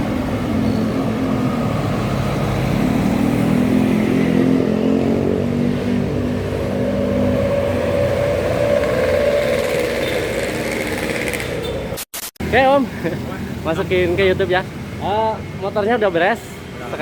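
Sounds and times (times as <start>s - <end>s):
scooter engine running: 8.4s - 11.7s.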